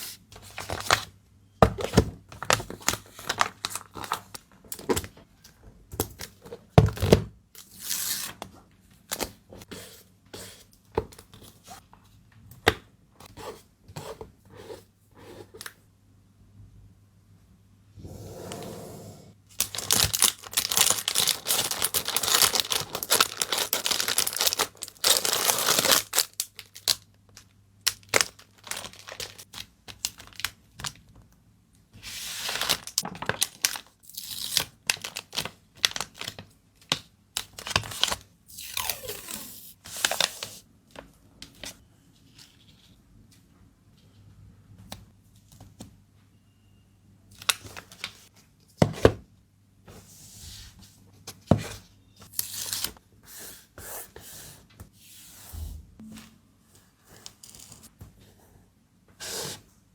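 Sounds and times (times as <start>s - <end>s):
packing material rustling: 19.5s - 27.0s, 27.9s - 29.5s
tape and plastic wrap tearing: 19.6s - 27.0s.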